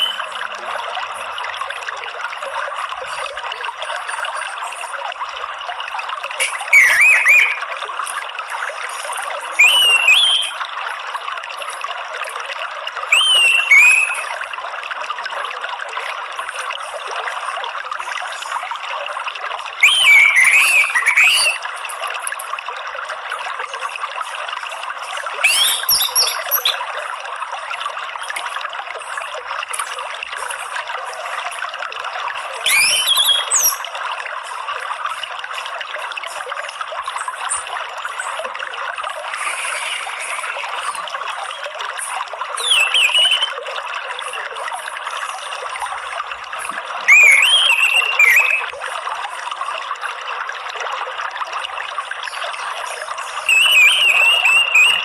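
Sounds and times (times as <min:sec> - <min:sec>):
thrush whistled song: 0:00.0 - 0:00.4, 0:06.4 - 0:07.8, 0:09.5 - 0:10.7, 0:13.0 - 0:14.5, 0:19.8 - 0:21.8, 0:25.4 - 0:26.9, 0:32.6 - 0:33.9, 0:39.3 - 0:41.7, 0:42.6 - 0:43.7, 0:47.0 - 0:48.8, 0:52.3 - 0:55.0
water trickling: 0:00.0 - 0:55.0.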